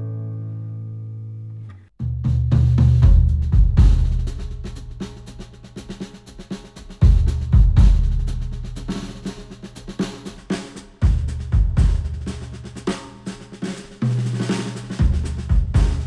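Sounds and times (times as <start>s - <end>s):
strong low thumps: 2.1s - 5.0s, 7.0s - 8.3s, 11.0s - 12.3s, 15.0s - 16.0s
music with drum kit: 2.2s - 16.0s.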